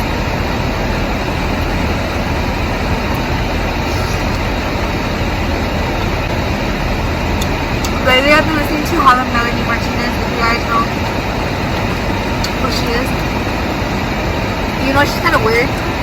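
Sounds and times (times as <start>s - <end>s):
car cabin rumble and hiss: 0.0s - 16.0s.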